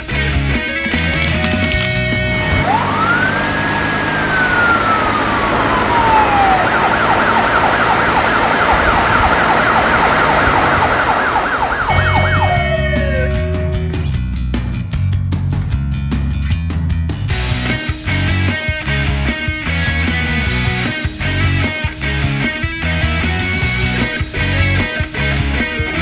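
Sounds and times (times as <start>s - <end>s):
emergency siren wailing and yelping: 2.6s - 13.6s.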